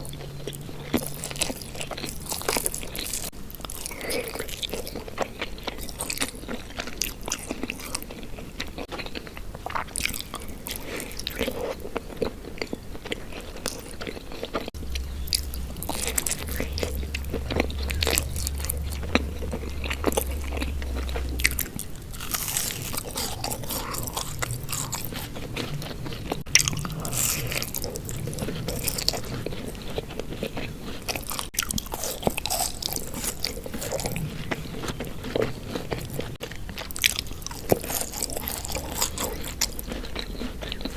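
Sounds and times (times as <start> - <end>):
crisp chewing and crunching: 0.0 - 40.9
low steady hum: 14.5 - 40.9.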